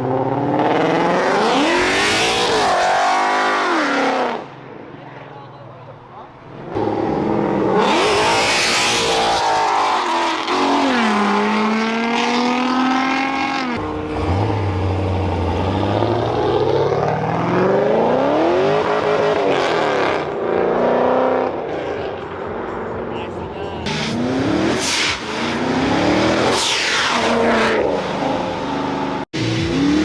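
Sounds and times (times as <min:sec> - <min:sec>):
car engines revving: 0:00.0 - 0:05.0, 0:06.3 - 0:30.0.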